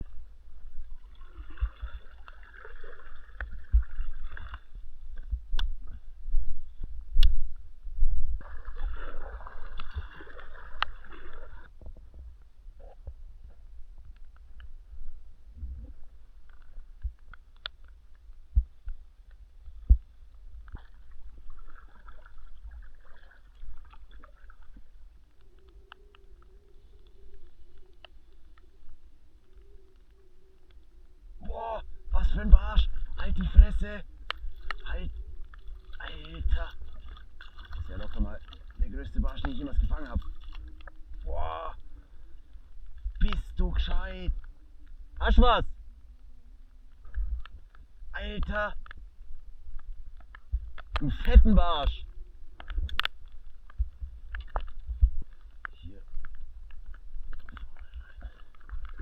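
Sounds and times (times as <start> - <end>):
water gurgling and lapping: 0.0 - 59.0
low rumble: 10.8 - 17.2
small clicks: 16.4 - 18.2, 24.5 - 30.9, 52.6 - 59.0.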